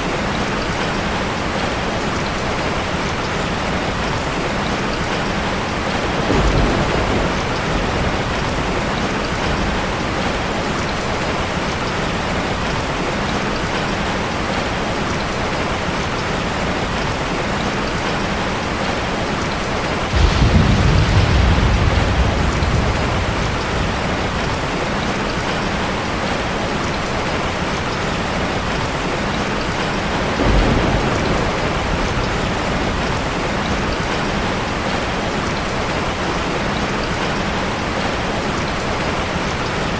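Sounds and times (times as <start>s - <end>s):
heavy rain hissing: 5.5s - 12.9s, 16.6s - 37.2s
thunder rumbling: 5.7s - 11.7s, 20.0s - 26.6s, 27.7s - 35.2s.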